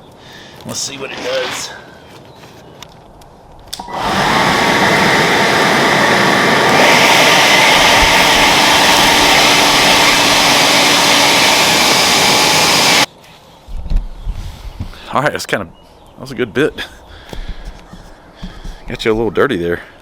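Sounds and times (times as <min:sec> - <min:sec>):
leaf blower blowing air: 0:03.8 - 0:13.1.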